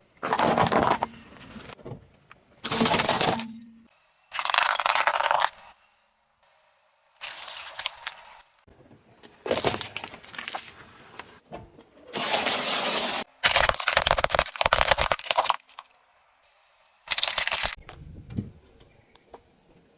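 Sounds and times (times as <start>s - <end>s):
objects crunching under car tyre: 0.2s - 1.8s, 9.2s - 11.4s.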